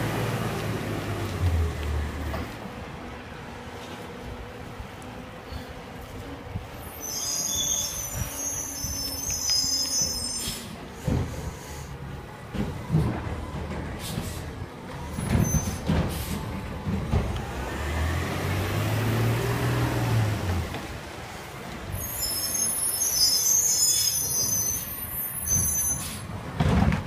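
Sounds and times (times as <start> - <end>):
garbage truck diesel engine: 0.0 - 27.0
short air hisses: 7.0 - 11.9
clunks and bangs: 11.0 - 11.5, 12.5 - 17.6, 26.5 - 27.0.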